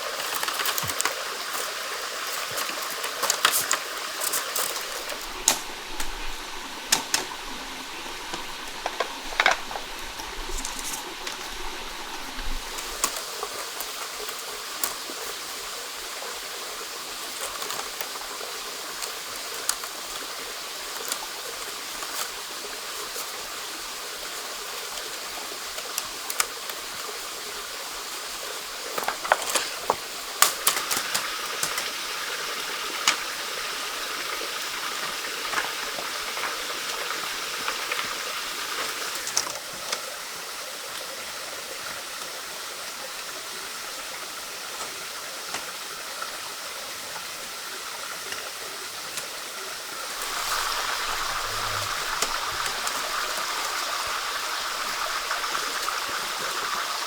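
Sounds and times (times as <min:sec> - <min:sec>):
stream water running: 0:00.0 - 0:57.0
sharp clicks and knocks: 0:02.6 - 0:14.0.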